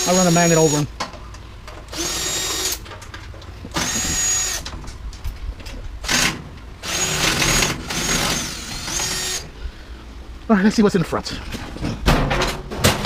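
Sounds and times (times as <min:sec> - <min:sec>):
power drill whining: 0:01.9 - 0:02.8, 0:03.7 - 0:04.6, 0:06.0 - 0:09.5.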